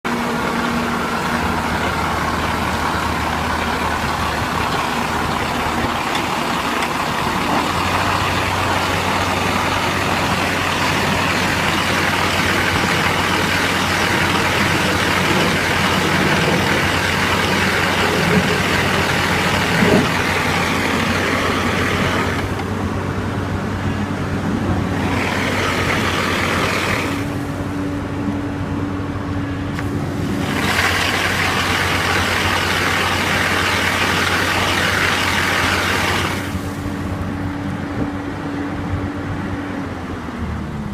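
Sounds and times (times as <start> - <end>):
heavy diesel machinery running: 0.0 - 40.9.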